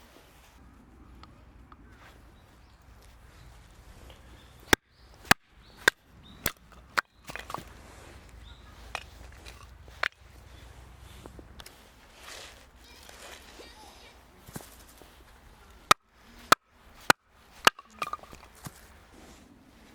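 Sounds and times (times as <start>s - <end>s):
sharp chopping knocks: 4.6s - 7.8s.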